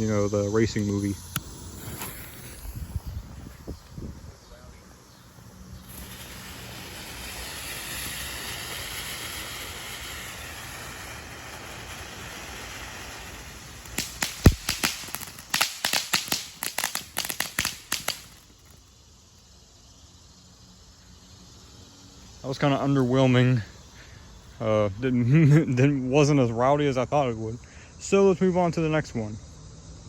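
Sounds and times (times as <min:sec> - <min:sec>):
ground firework hissing: 0:00.0 - 0:26.9
firework cracking: 0:00.5 - 0:19.6.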